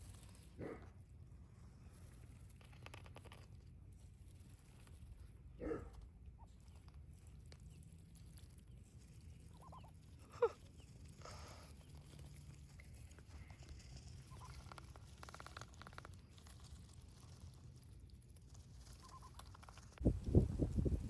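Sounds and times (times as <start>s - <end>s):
wind gust on microphone: 20.0s - 21.0s.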